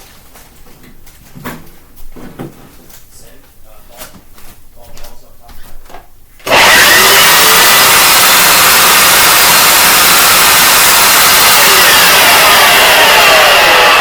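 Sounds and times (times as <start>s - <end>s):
carpet cleaner motor running: 6.4s - 14.0s.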